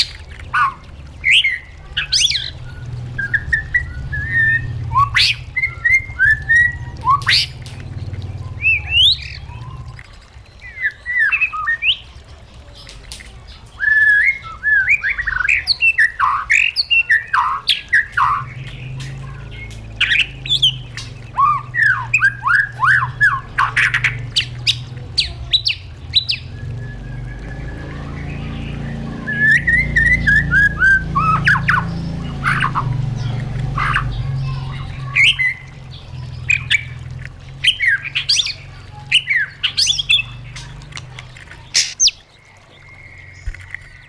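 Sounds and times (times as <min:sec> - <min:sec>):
bird singing whistles and clicks: 0:03.2 - 0:07.9, 0:36.5 - 0:44.0.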